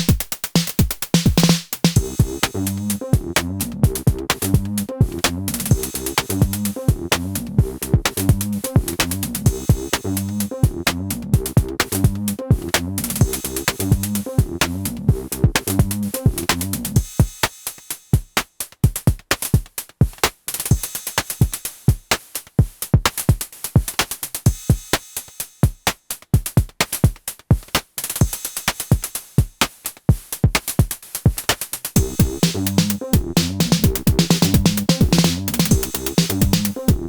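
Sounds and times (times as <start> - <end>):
electronic drum machine pattern: 0.0 - 17.4, 32.0 - 37.0
sequenced synth bass: 2.0 - 17.0, 32.0 - 37.0.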